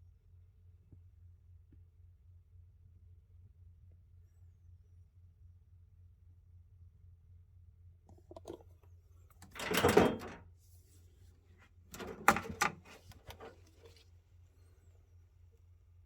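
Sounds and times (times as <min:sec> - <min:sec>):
sharp clicks and knocks: 0:11.9 - 0:13.6.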